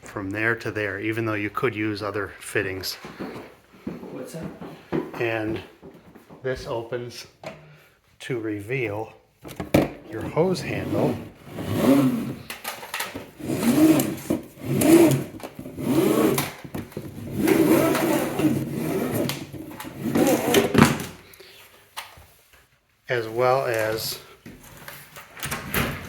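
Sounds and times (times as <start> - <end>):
vacuum hose whining as pulled: 10.7 - 21.1.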